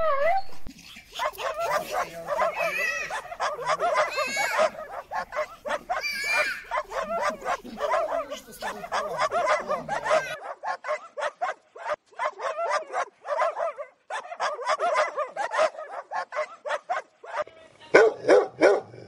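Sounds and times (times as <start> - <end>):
dogs barking: 0.7 - 19.0.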